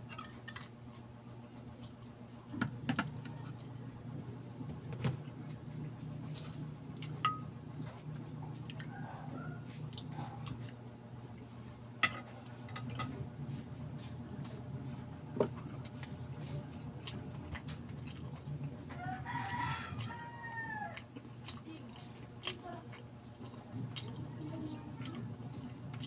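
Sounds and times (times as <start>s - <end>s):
wet chewing: 5.5s - 11.5s, 15.7s - 26.0s.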